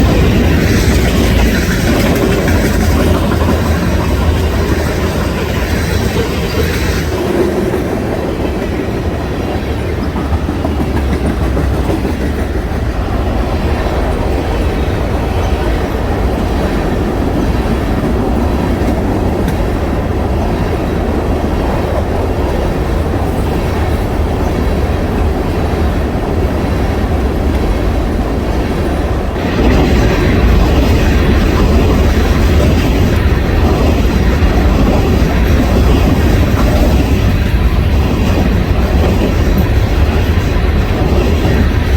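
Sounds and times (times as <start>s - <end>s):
train wheels clacking on rails: 0.0s - 41.9s.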